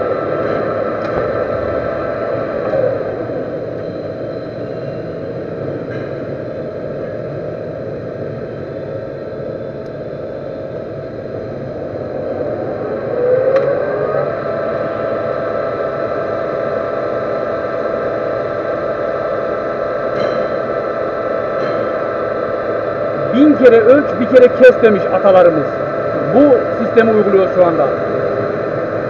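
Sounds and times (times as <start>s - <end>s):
metal lathe humming and whirring: 0.0s - 29.0s
rising tone: 11.4s - 18.2s.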